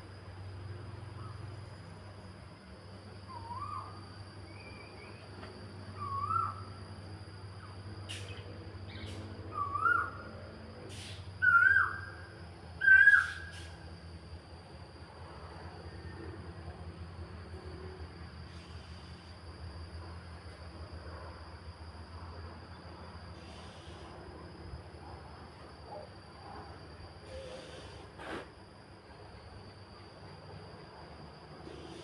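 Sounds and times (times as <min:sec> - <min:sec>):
steady low hum: 0:00.0 - 0:32.0
bird calling: 0:06.0 - 0:06.6, 0:11.4 - 0:12.1, 0:12.8 - 0:13.7.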